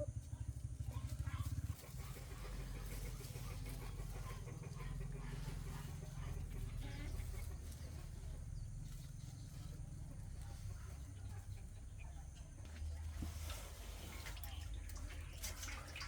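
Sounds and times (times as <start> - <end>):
chickens clucking: 1.1 - 12.6.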